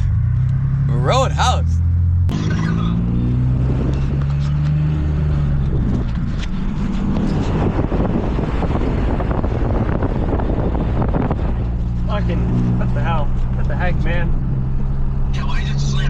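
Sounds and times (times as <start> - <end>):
car engine hum: 0.0 - 16.0
tyre and road rumble: 0.0 - 16.0
wind noise: 3.3 - 13.5.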